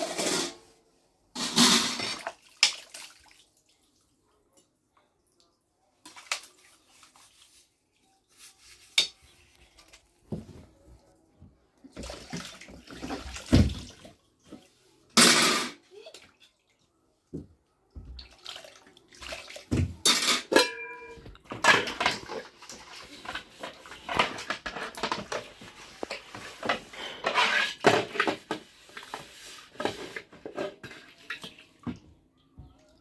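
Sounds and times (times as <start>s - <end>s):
water splashing and sloshing: 1.7s - 11.1s, 11.8s - 15.2s, 15.8s - 20.5s, 21.2s - 33.0s
household things clattering: 19.7s - 31.0s.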